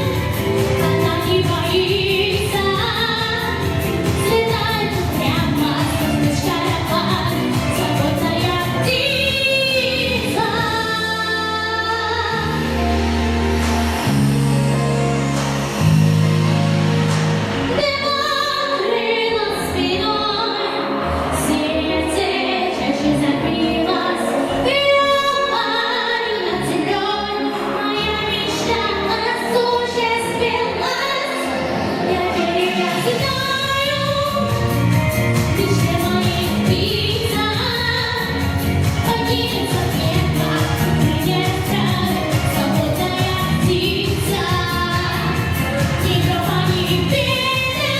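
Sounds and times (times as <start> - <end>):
woman singing pop song: 0.0 - 13.2, 17.4 - 47.9
backing track with steady beat: 0.0 - 18.2, 32.0 - 47.9.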